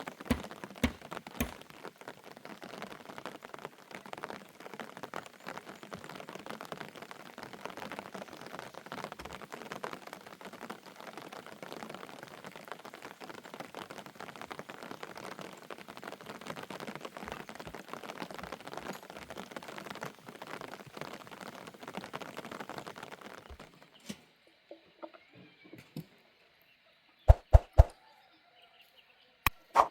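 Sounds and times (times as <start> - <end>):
rain falling: 0.0 - 24.8.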